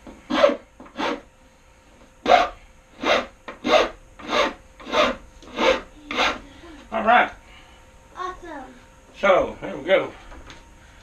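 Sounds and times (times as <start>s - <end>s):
hand rasp filing wood: 0.3s - 1.2s, 2.3s - 6.4s.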